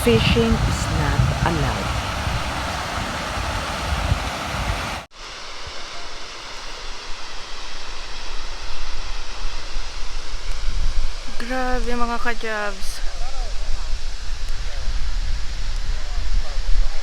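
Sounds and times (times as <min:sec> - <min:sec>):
waterfall rushing: 0:00.0 - 0:05.4.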